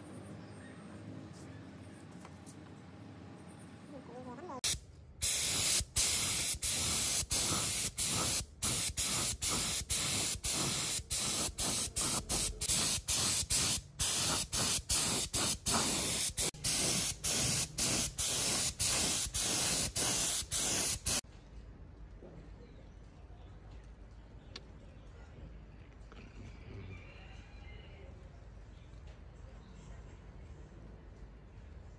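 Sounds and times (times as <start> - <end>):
pressurised spray hissing: 4.6 - 21.2.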